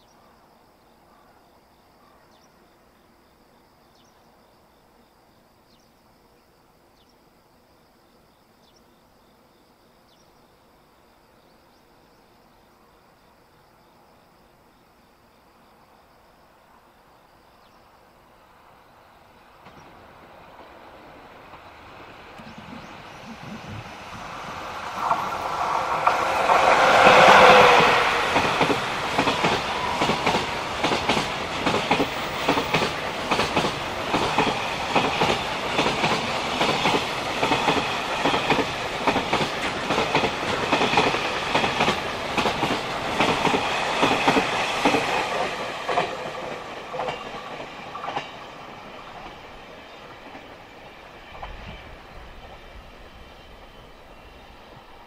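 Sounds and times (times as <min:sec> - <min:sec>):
electric locomotive passing: 0:16.5 - 0:55.0
train wheels clickety-clack: 0:19.6 - 0:53.8.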